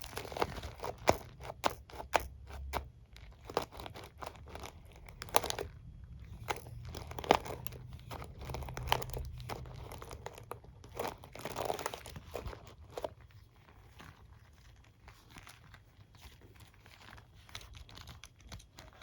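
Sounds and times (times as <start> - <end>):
hairbrush and comb handled: 0.0 - 13.2.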